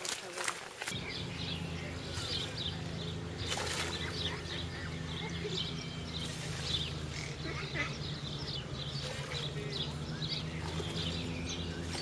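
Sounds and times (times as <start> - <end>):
high bird chirps: 0.9 - 12.0
steady low hum: 0.9 - 12.0.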